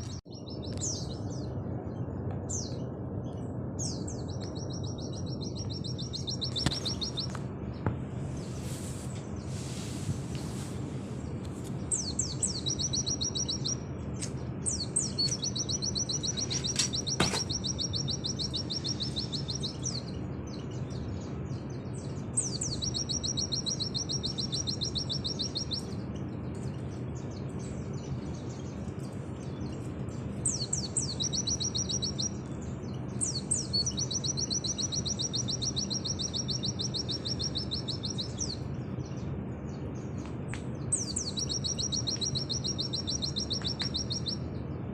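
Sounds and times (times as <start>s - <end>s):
bird singing rapid trills: 0.0s - 7.9s, 11.3s - 44.9s
steady low hum: 0.0s - 44.9s.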